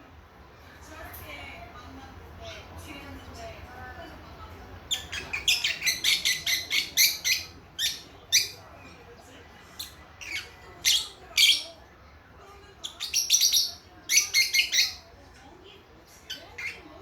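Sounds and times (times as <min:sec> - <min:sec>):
lovebirds chirping shrilly: 0:04.9 - 0:08.6, 0:12.9 - 0:15.1.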